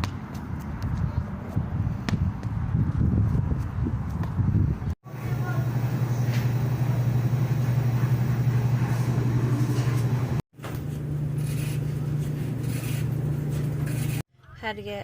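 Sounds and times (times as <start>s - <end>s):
road noise: 0.0s - 10.4s.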